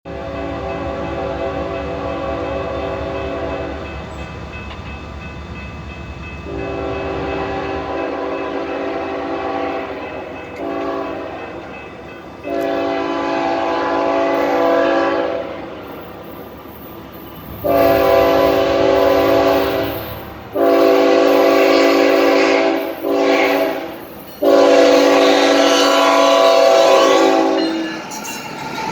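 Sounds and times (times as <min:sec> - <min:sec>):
locomotive air horn: 0:00.1 - 0:03.8, 0:06.5 - 0:11.6, 0:12.4 - 0:15.7, 0:17.5 - 0:27.9
locomotive rumble: 0:00.1 - 0:28.9.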